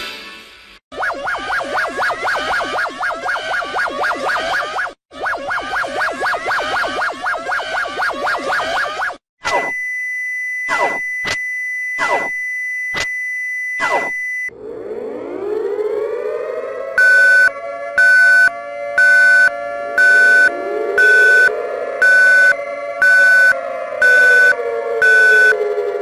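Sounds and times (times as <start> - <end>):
steady high alert tone: 0.9 - 9.8
siren winding up: 0.9 - 26.0
loud pulsing beep: 1.0 - 14.5, 17.0 - 25.6.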